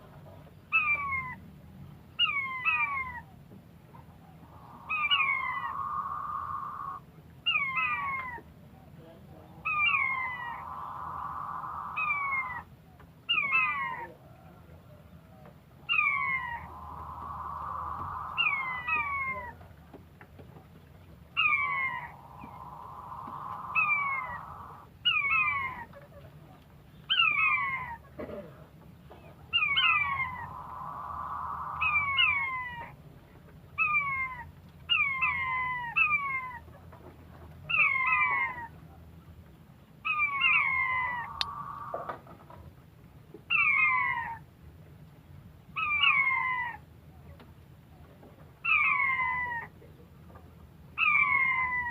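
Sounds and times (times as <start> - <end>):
quail calling: 0.7 - 1.4, 2.2 - 3.4, 4.2 - 8.4, 9.5 - 12.7, 13.3 - 14.2, 15.8 - 19.6, 21.3 - 26.0, 29.5 - 33.0, 37.7 - 38.7, 40.0 - 42.3, 43.5 - 44.4, 45.8 - 46.8, 48.6 - 49.7, 51.0 - 51.9.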